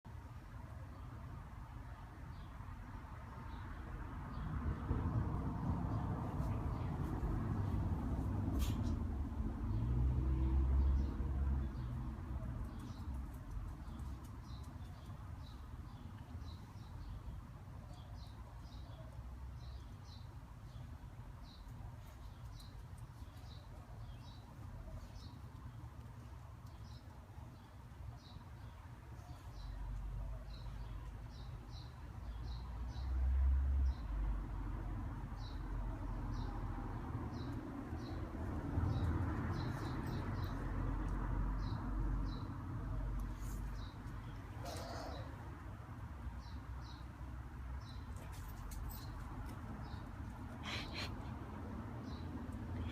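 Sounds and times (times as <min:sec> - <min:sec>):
small birds chirping: 0:09.7 - 0:33.2, 0:35.3 - 0:52.9.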